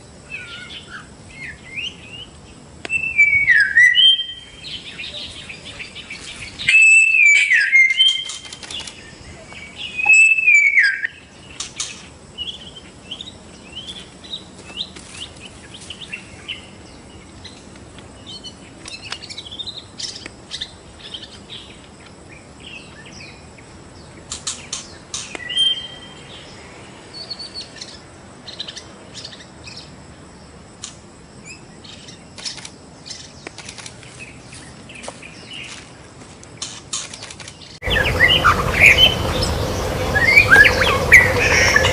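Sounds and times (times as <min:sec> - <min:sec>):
shama whistled song: 0:02.9 - 0:04.6, 0:06.7 - 0:08.4, 0:10.0 - 0:11.1, 0:37.9 - 0:41.9.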